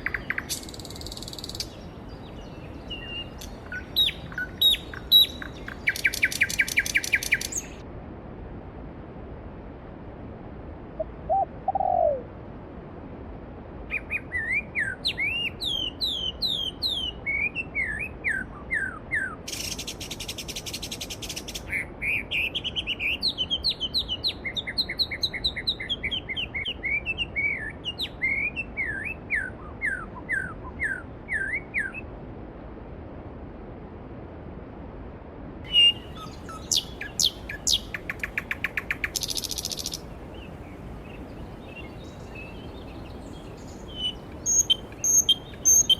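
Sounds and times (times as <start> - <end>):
songbirds whistling: 0.0 - 7.8, 13.9 - 32.1, 35.7 - 45.9
buzzy bird trill: 35.7 - 40.1, 43.3 - 45.9
low falling bird call: 35.7 - 45.9.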